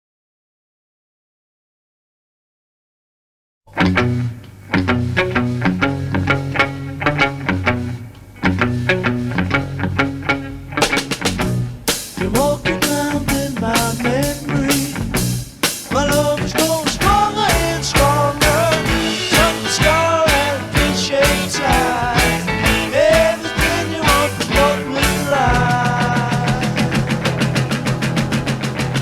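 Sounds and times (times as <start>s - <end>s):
bass guitar: 3.7s - 29.0s
electric guitar: 3.7s - 29.0s
drum kit beat: 10.8s - 29.0s.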